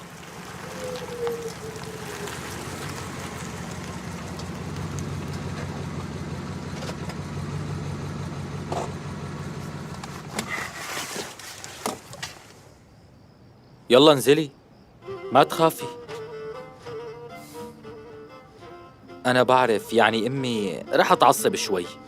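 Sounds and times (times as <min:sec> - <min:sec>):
car engine idling: 0:00.0 - 0:10.8.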